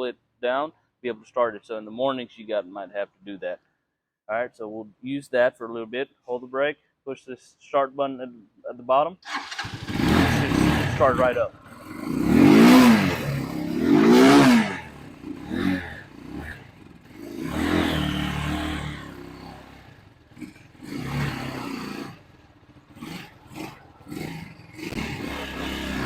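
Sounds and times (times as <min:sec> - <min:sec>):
motorcycle engine revving: 0:09.2 - 0:26.0.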